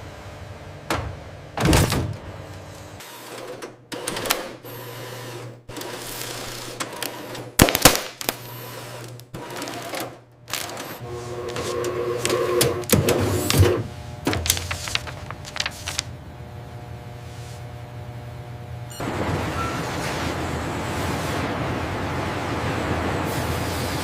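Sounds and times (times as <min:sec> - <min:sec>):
machine hum: 0:08.2 - 0:24.0.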